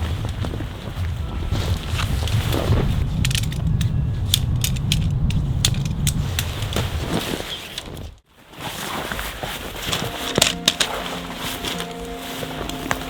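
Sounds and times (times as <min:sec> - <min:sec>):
wind rumble on microphone: 0:00.0 - 0:08.2
gear clicking and rattling: 0:01.9 - 0:08.1.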